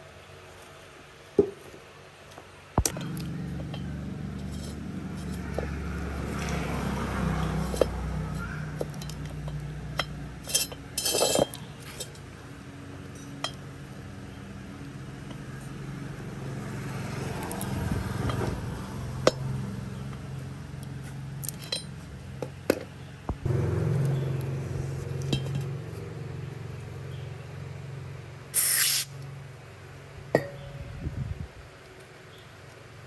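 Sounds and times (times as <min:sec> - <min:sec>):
metal tools clinking: 0:02.8 - 0:05.7, 0:07.4 - 0:12.3, 0:21.4 - 0:22.0, 0:25.2 - 0:25.7
steady low hum: 0:02.8 - 0:06.4
short hiss: 0:28.6 - 0:29.2.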